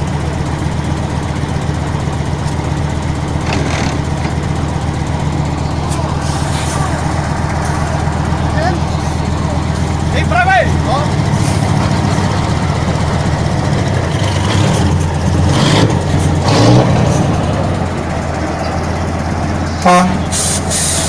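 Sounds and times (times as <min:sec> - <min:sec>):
heavy truck engine revving: 0:00.0 - 0:21.0
truck horn toot: 0:19.7 - 0:21.0.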